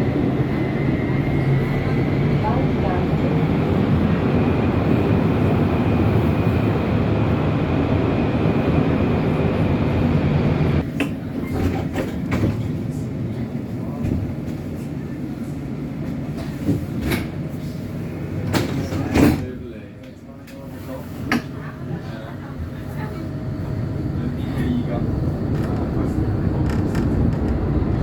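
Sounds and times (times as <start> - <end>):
tram rumbling: 0.0 - 28.0.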